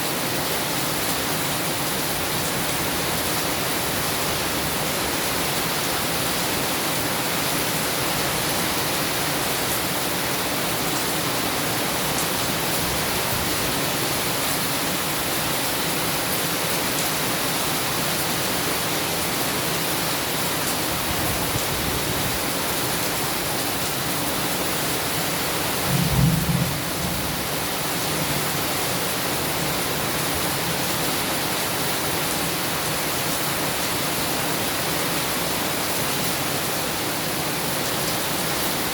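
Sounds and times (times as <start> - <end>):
heavy rain: 0.0 - 38.9
thunder rumble: 25.9 - 27.8.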